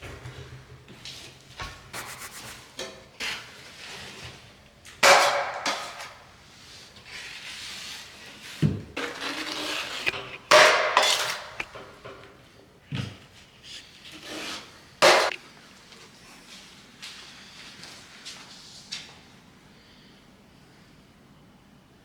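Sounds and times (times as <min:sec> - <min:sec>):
drywall tools scraping and knocking: 0:02.0 - 0:03.4.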